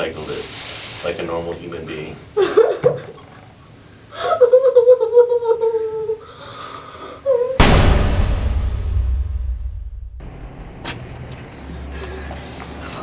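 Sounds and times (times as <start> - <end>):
loud noise with low rumble: 7.6 - 11.1.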